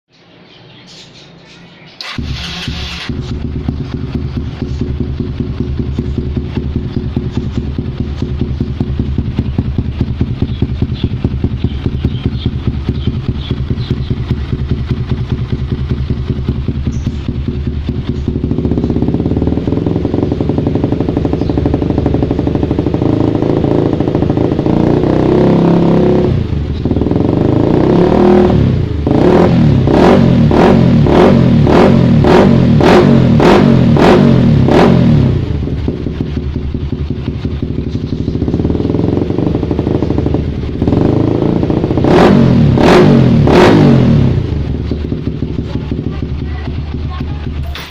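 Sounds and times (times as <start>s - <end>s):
motorcycle engine revving: 1.9s - 47.9s.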